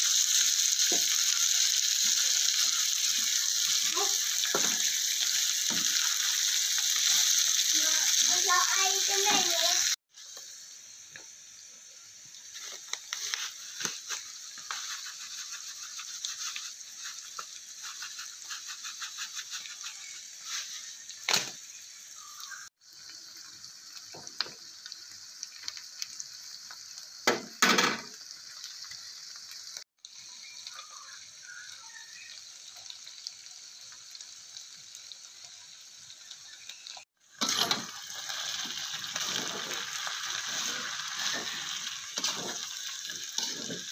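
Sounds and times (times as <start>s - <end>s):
food sizzling in a wok: 0.0s - 43.9s
wooden spatula scraping a pan: 12.6s - 21.0s, 39.2s - 39.9s, 40.5s - 43.9s.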